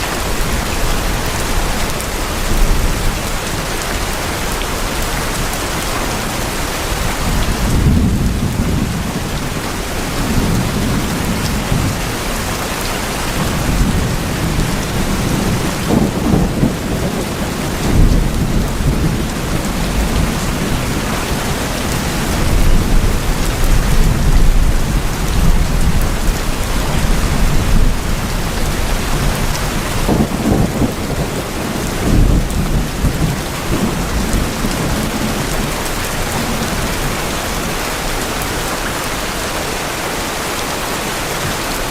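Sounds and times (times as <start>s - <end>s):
heavy rain on tin roofs: 0.0s - 41.9s
thunder rolling: 7.2s - 12.6s, 13.2s - 37.1s.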